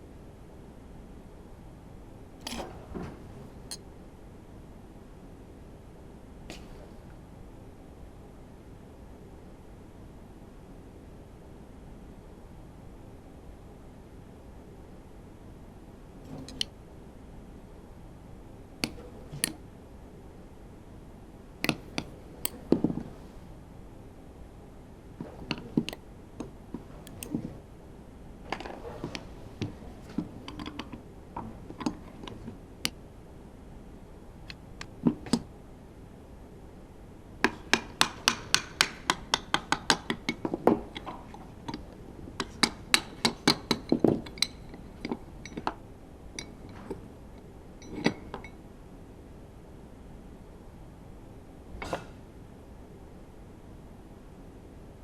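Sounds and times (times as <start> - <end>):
metal tools clinking and knocking: 16.3 - 16.6.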